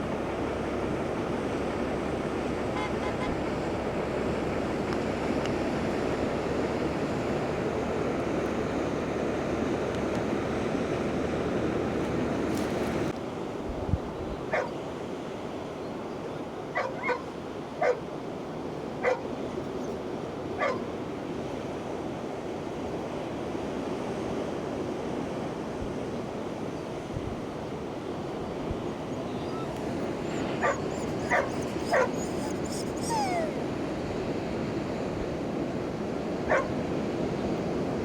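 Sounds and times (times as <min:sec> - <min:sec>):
dog yipping: 0:14.5 - 0:14.7, 0:16.8 - 0:18.0, 0:19.0 - 0:19.3, 0:20.6 - 0:20.9, 0:29.1 - 0:33.8, 0:36.5 - 0:36.8
surf rushing: 0:28.2 - 0:34.0.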